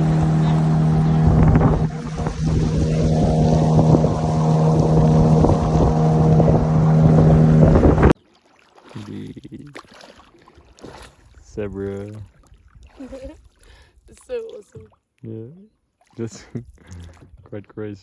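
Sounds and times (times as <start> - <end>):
engine humming: 0.0 - 8.2.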